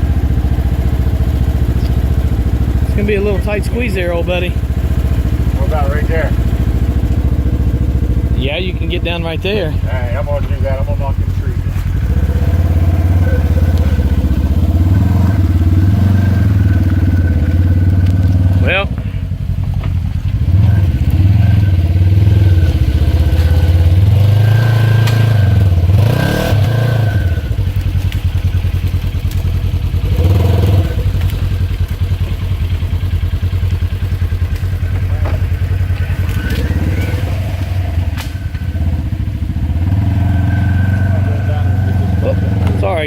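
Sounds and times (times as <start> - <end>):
engine revving in surges: 0.0 - 19.4, 20.3 - 28.1, 30.0 - 31.6, 35.2 - 43.0
knocks and clatter: 34.4 - 36.7.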